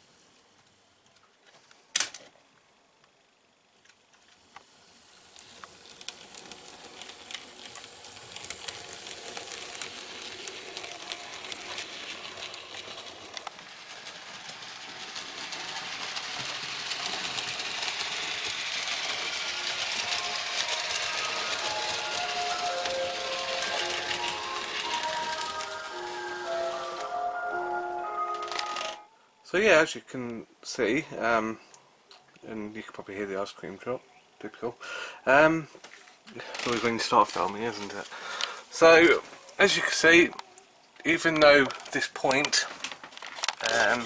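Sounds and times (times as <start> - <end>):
model train motor whirr: 4.2 - 28.9, 43.2 - 44.0
wheel clicks over rail joints: 5.3 - 26.0, 41.0 - 44.0.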